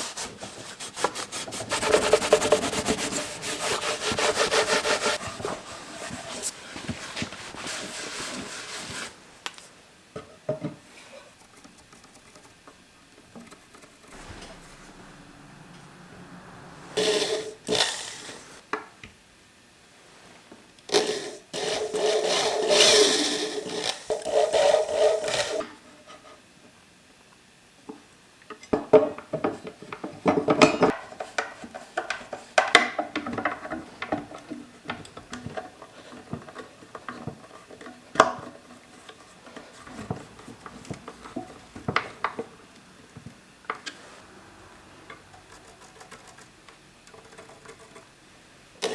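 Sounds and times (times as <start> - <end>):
rubbing and scraping toolbox: 0.0 - 9.2.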